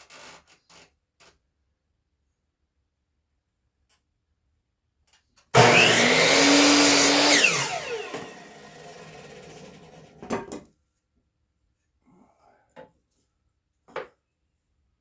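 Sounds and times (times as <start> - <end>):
miter saw cutting wood: 5.6 - 10.2
saw blade winding down whine: 5.6 - 10.2.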